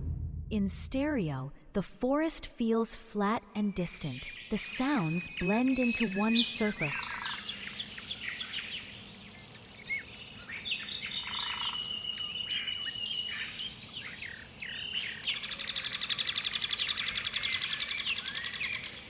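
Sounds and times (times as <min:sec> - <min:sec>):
long high bird trill: 0:03.5 - 0:08.6
birds chirping and calling: 0:03.5 - 0:19.0.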